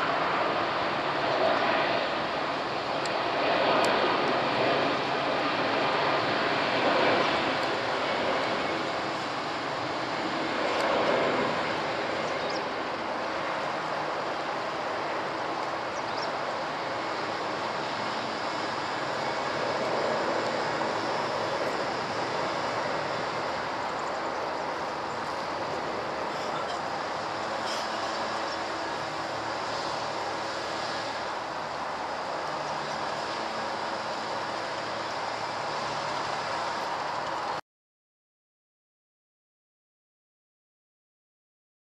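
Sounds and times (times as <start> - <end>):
jet airliner roar: 0.0 - 37.6.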